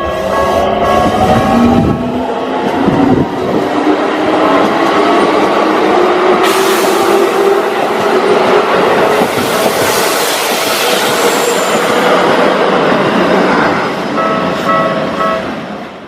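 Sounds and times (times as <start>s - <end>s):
crossing warning bell ringing: 0.0s - 2.0s, 14.1s - 15.8s
train wheels rushing on rails: 0.0s - 16.0s.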